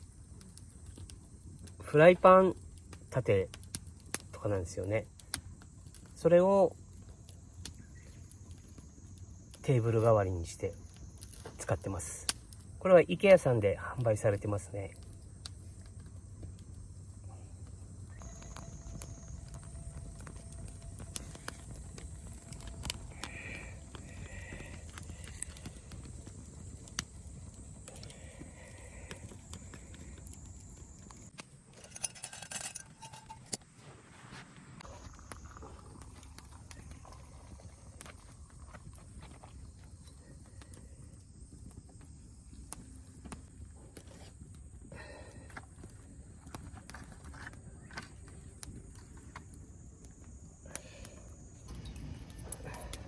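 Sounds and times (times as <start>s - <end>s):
low outdoor rumble: 13.7s - 48.6s
steady low rumble: 15.1s - 31.3s
metallic clinking and knocks: 31.7s - 33.6s.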